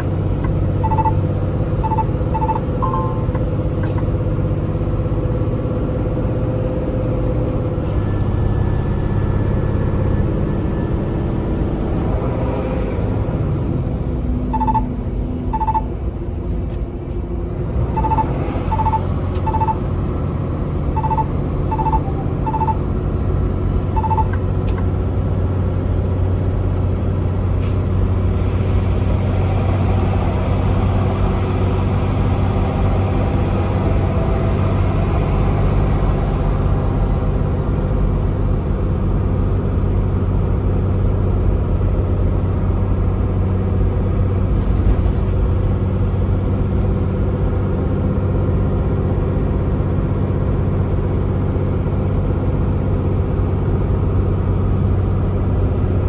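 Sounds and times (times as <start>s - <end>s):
truck diesel engine droning: 0.0s - 56.0s
short high electronic beeps: 0.8s - 1.2s, 1.8s - 3.4s, 14.5s - 14.9s, 15.5s - 15.8s, 18.0s - 19.8s, 20.9s - 22.9s, 23.8s - 24.4s.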